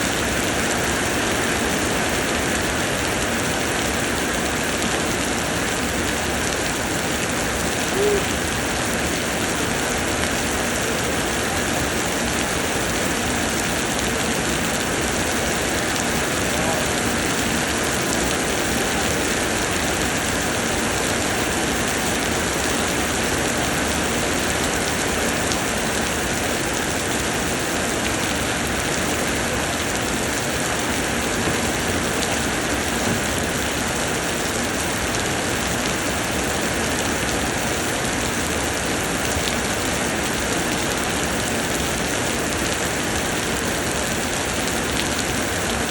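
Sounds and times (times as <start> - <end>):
rain pouring down: 0.0 - 45.9
brief tone: 7.9 - 8.4.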